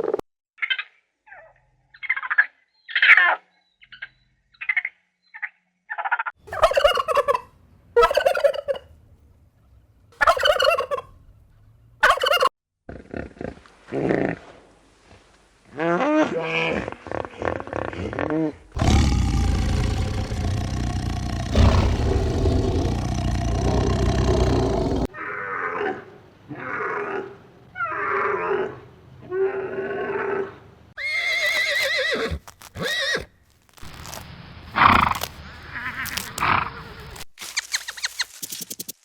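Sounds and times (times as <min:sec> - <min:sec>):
farm animals calling: 0:06.5 - 0:08.9, 0:10.2 - 0:11.1, 0:12.0 - 0:12.5, 0:18.8 - 0:25.1, 0:31.0 - 0:34.2.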